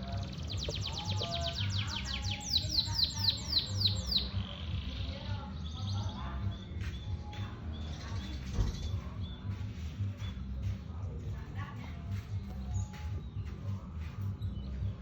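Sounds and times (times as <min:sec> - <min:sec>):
canary singing: 0:00.0 - 0:10.8.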